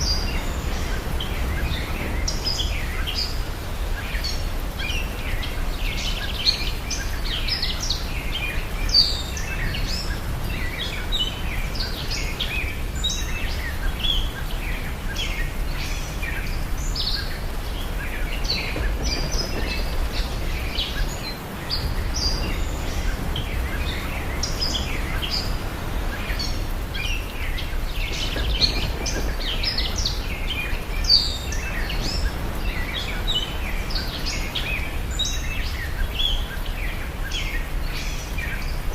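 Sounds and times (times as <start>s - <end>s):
small birds chirping and twittering: 0.0s - 38.9s
steady low rumble: 15.6s - 36.3s.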